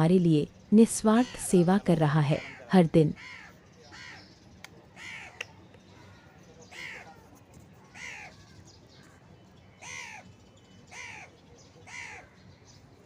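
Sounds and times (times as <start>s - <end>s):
crow cawing: 1.1s - 4.3s, 5.0s - 5.4s, 6.0s - 7.2s, 7.9s - 8.4s, 9.8s - 10.3s, 10.9s - 12.4s.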